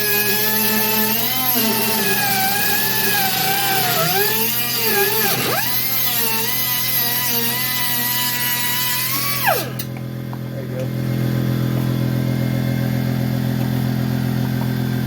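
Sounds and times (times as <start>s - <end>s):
cutoff wheel cutting metal: 0.0s - 10.0s.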